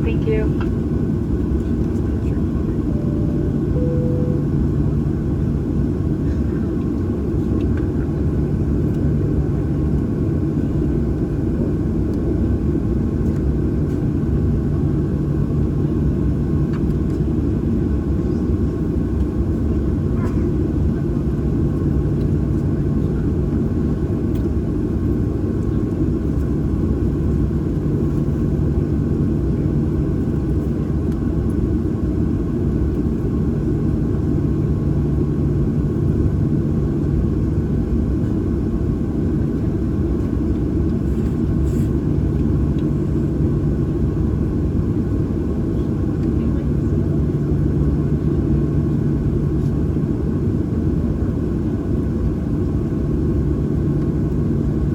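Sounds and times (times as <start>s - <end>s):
jet engines idling: 0.0s - 9.0s.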